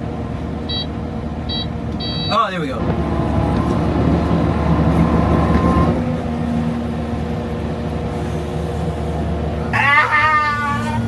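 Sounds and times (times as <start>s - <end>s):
skid steer engine running: 2.8s - 10.0s.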